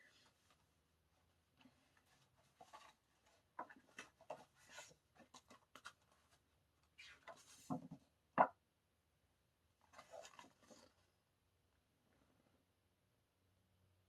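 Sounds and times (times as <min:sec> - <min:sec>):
paper packaging rustling: 0:09.9 - 0:10.9.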